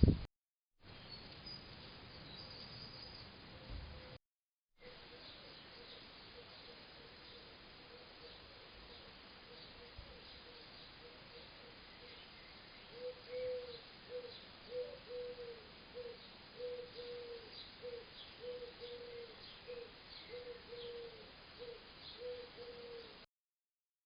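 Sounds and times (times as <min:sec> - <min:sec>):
small birds chirping: 0:00.9 - 0:04.2, 0:04.8 - 0:23.2
pigeon cooing: 0:12.9 - 0:23.2.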